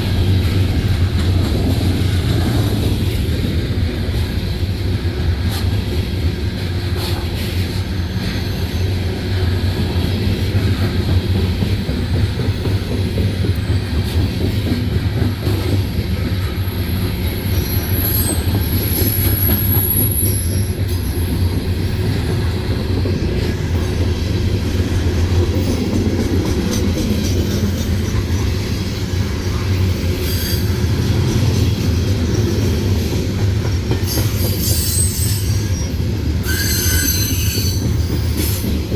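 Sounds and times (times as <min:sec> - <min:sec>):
freight train rumbling past: 0:00.0 - 0:38.9
high wheel squeal: 0:16.5 - 0:21.4, 0:30.0 - 0:31.1, 0:34.0 - 0:38.6.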